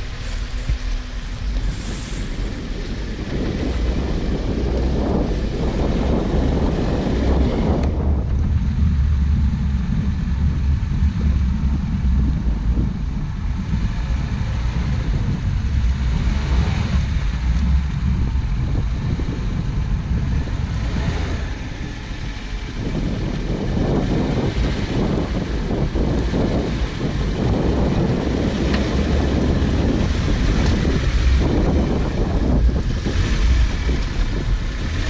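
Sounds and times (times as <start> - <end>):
vehicle engine low rumble: 0.0 - 35.0.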